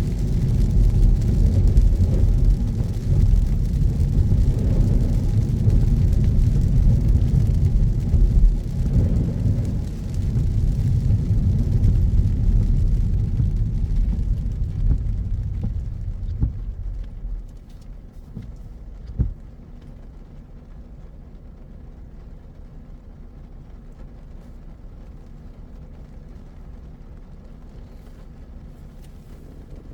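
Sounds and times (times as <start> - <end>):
car interior low hum: 0.0 - 29.9
road and tyre rumble: 0.0 - 29.9
thump: 14.8 - 19.4.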